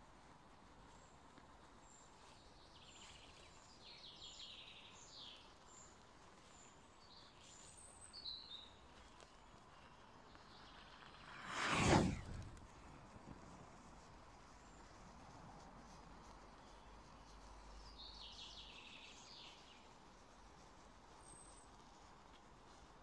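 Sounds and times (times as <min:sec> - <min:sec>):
faint birdsong: 0:00.6 - 0:13.0, 0:14.3 - 0:23.0.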